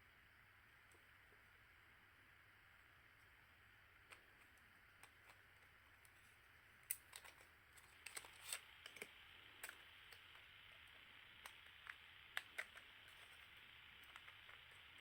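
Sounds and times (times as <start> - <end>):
small parts clicking and tapping: 4.0 - 15.0.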